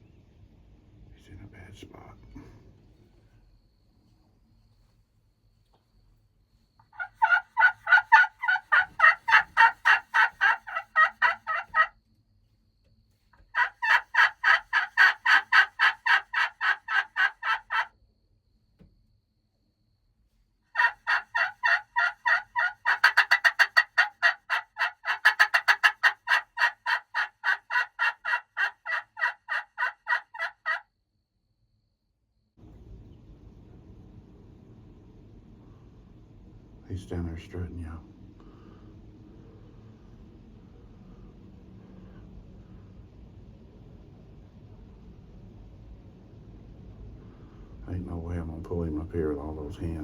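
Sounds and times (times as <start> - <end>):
turkey yelping: 6.8 - 12.0, 13.5 - 17.9, 20.7 - 30.8.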